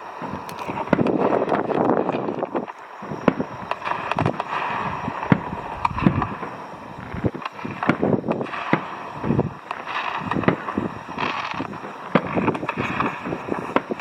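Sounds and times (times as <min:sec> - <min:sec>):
steady background hiss: 0:00.0 - 0:14.0
fireworks bangs and pops: 0:00.2 - 0:14.0.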